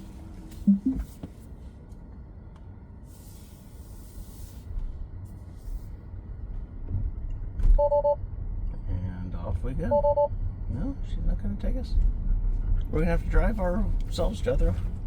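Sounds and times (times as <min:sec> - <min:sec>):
low steady cabin rumble: 0:00.0 - 0:15.0
short low thumps: 0:00.7 - 0:01.1.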